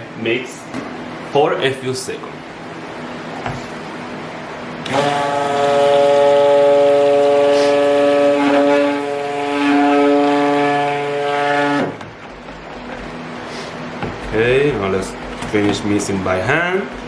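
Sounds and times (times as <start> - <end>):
electric stick blender running: 4.8 - 13.3.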